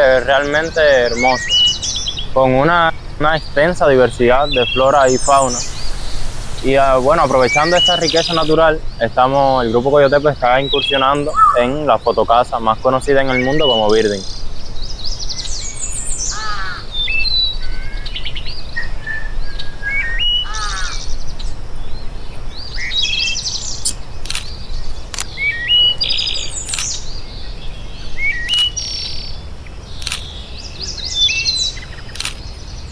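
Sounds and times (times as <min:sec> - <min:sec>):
sharp clicks: 0:03.4 - 0:08.6
songbirds singing: 0:03.4 - 0:08.6.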